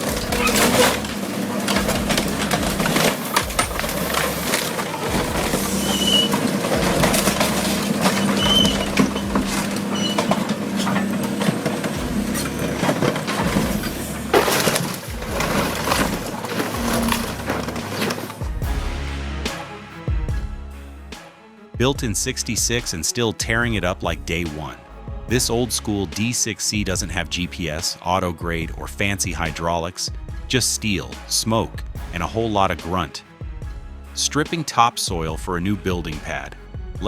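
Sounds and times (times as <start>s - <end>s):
debris crunching and cracking: 0.0s - 18.7s
heavy machine humming: 0.0s - 19.2s
short high squeaks: 0.1s - 1.2s, 4.4s - 11.3s.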